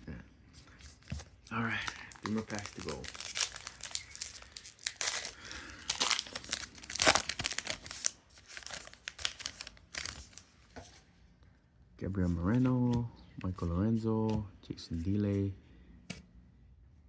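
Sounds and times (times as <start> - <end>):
wrapper tearing and crinkling: 1.0 - 10.4.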